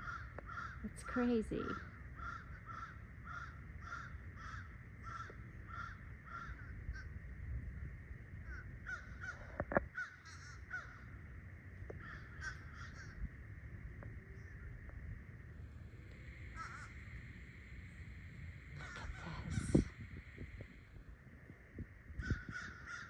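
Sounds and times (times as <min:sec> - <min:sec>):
flock of birds calling: 0:00.0 - 0:07.2, 0:08.4 - 0:11.2, 0:11.9 - 0:13.3, 0:16.3 - 0:17.2, 0:18.7 - 0:20.6, 0:22.2 - 0:23.0.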